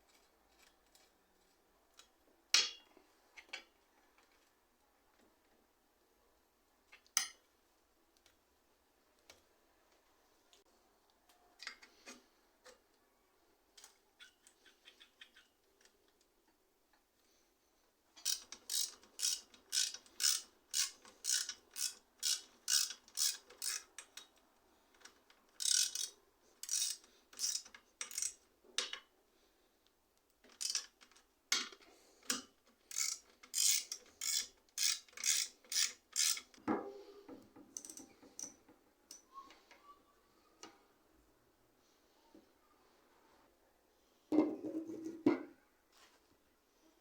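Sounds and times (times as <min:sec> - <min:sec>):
ratcheting hand tool strokes: 0:18.2 - 0:23.9, 0:25.6 - 0:28.4, 0:32.9 - 0:36.6.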